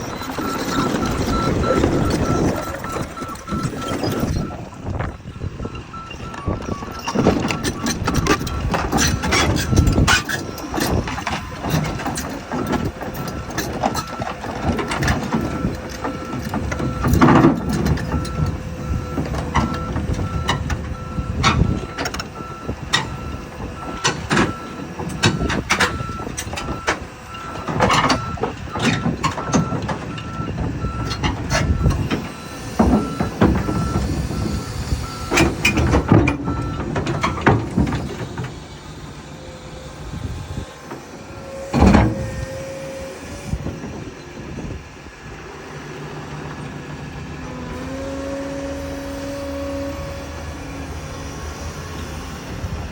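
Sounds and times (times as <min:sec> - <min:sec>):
travel alarm beeping: 0:00.0 - 0:11.0
steel tracks clanking: 0:00.0 - 0:44.9
diesel engine: 0:00.0 - 0:52.9.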